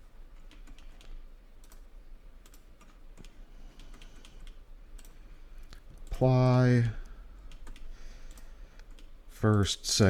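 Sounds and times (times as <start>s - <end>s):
computer mouse and keyboard clicks: 0.4s - 6.2s, 7.5s - 9.6s.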